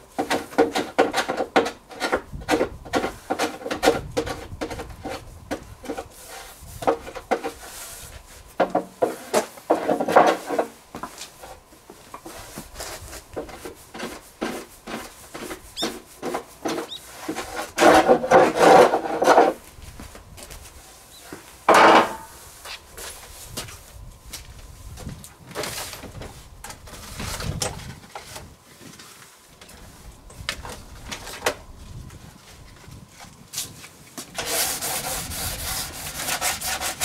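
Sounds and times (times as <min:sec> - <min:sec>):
hand rasping wood: 0:34.4 - 0:37.0.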